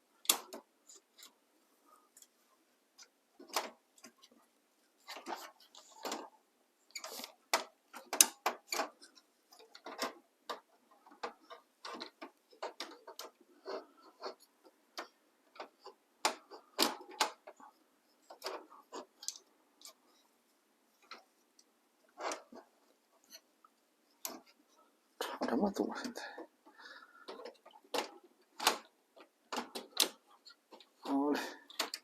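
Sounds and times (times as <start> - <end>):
plastic clicks and knocks: 5.0 - 20.0, 27.2 - 31.1, 31.7 - 32.0.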